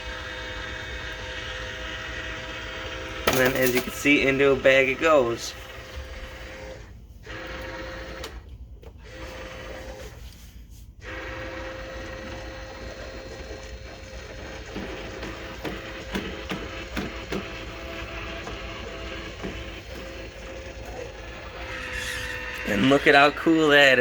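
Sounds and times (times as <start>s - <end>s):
electric motor hum: 0.0s - 8.4s, 11.0s - 24.0s
rake clicking and knocking: 3.3s - 4.1s.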